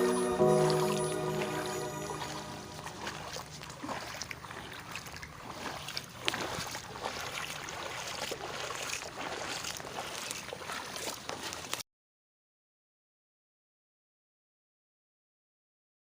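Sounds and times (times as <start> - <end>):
floodwater splashing and lapping: 0.0 - 11.8.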